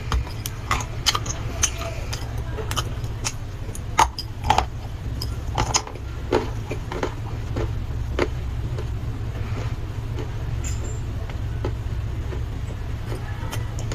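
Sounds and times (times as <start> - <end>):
clay crunching when chewed: 0.0 - 13.9
low hum: 0.0 - 13.9.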